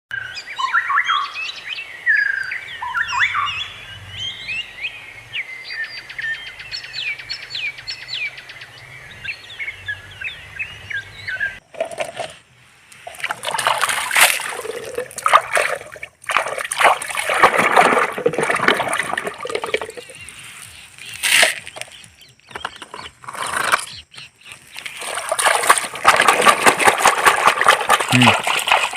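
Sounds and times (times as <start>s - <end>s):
birds chirping and trilling: 0.1s - 11.7s, 18.4s - 25.8s
water splashing and sloshing: 11.6s - 23.9s, 24.5s - 28.9s.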